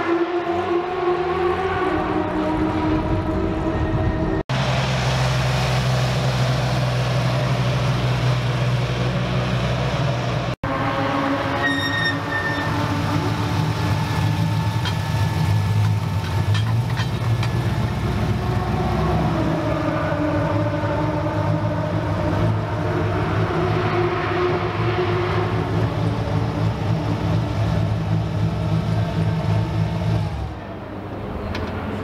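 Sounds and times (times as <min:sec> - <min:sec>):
car engine running: 0:12.7 - 0:18.8, 0:25.1 - 0:30.8.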